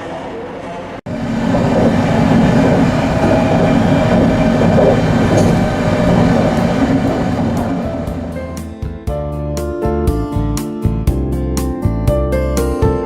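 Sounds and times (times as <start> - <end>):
train rumbling: 0.0 - 9.0.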